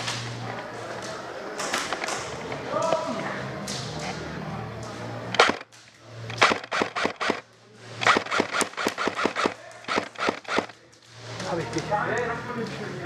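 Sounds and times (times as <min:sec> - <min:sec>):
airsoft guns firing shots: 0:05.3 - 0:05.7, 0:06.3 - 0:07.4, 0:08.0 - 0:10.8.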